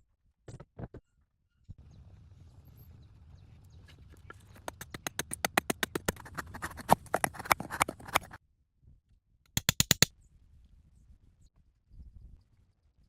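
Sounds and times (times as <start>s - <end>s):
quick run of sharp clicks: 4.2s - 8.4s, 9.6s - 10.1s.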